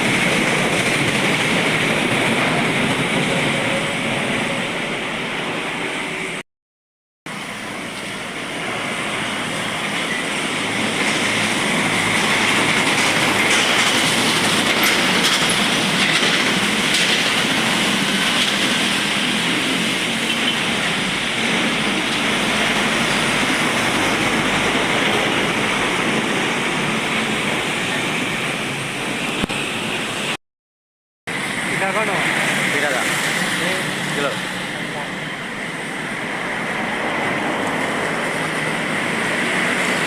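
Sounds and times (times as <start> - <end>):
tyres hissing through water: 7.3 - 30.4, 31.3 - 40.0
trucks rumbling past: 31.3 - 40.0.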